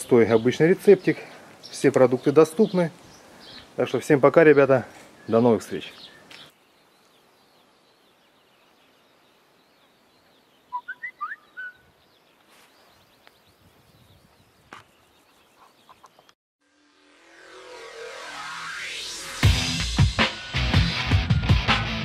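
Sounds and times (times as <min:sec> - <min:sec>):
bird calling: 0:04.5 - 0:09.0, 0:09.8 - 0:13.4, 0:14.0 - 0:16.4
electronic music: 0:16.8 - 0:22.0.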